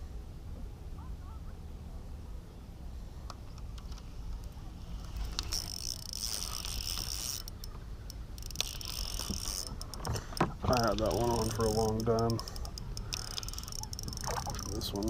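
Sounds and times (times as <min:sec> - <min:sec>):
fishing reel gears whirring: 0:05.0 - 0:15.0
fishing reel clicking: 0:05.2 - 0:15.0.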